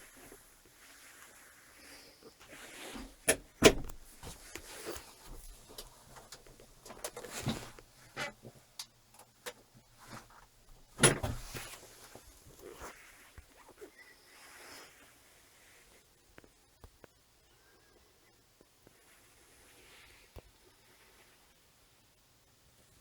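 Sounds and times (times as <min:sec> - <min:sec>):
irregular clicks and knocks: 0:03.0 - 0:11.8.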